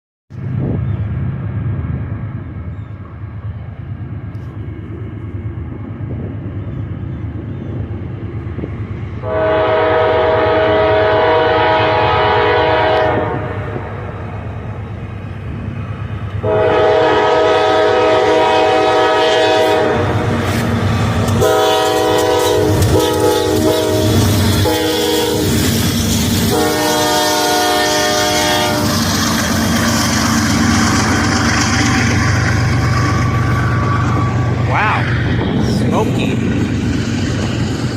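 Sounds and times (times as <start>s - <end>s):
locomotive engine rumble: 0.3s - 37.9s
multi-tone air horn blasts: 9.2s - 13.9s, 16.4s - 20.2s, 21.4s - 25.5s, 26.5s - 28.9s
rail clatter: 19.4s - 37.9s.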